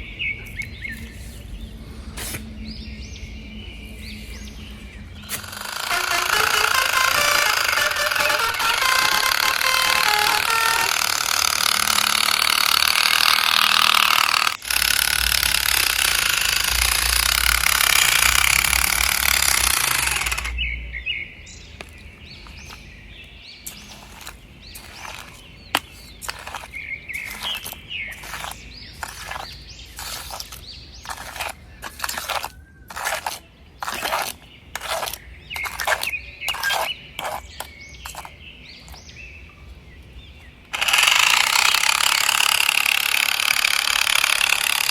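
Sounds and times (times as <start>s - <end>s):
electric motors whirring: 5.2s - 20.6s, 23.7s - 37.4s, 40.7s - 44.9s.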